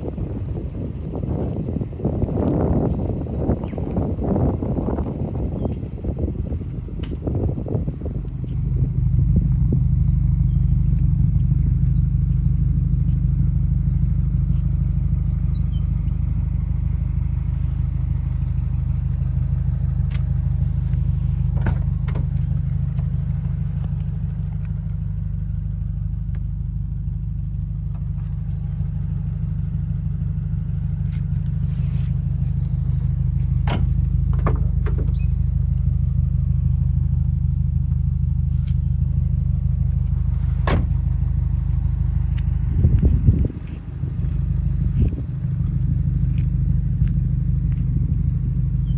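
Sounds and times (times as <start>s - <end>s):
car engine idling: 0.0s - 48.9s.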